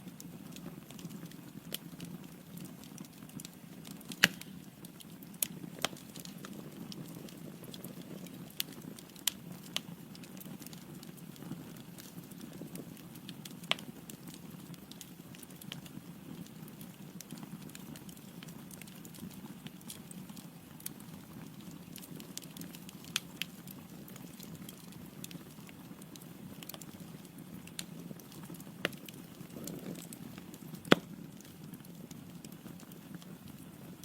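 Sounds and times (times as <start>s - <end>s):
logs crackling and popping: 0.1s - 34.0s
flame rushing in fireplace: 26.0s - 31.8s.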